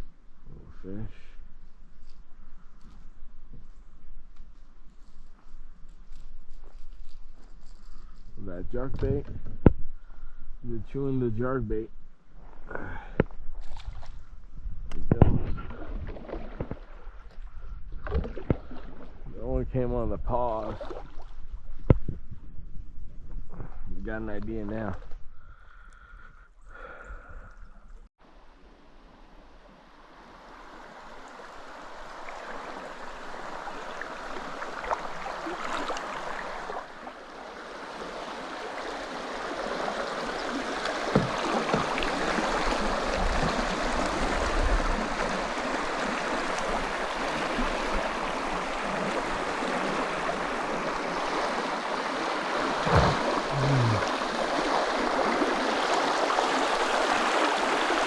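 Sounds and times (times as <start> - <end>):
river water rushing: 29.9 - 58.0.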